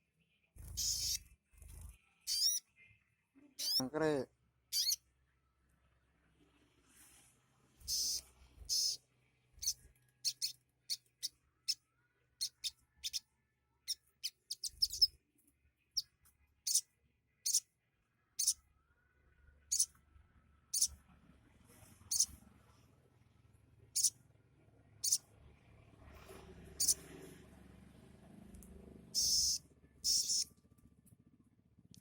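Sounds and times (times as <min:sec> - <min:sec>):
bird chirping: 0:00.3 - 0:01.2, 0:02.2 - 0:03.0, 0:03.6 - 0:03.9, 0:04.7 - 0:05.0, 0:07.8 - 0:09.0, 0:09.6 - 0:11.8, 0:12.4 - 0:13.2, 0:13.9 - 0:15.1, 0:17.4 - 0:17.6, 0:18.4 - 0:18.6, 0:19.6 - 0:19.9, 0:20.7 - 0:20.9, 0:22.1 - 0:22.3, 0:26.8 - 0:27.0, 0:29.2 - 0:30.5.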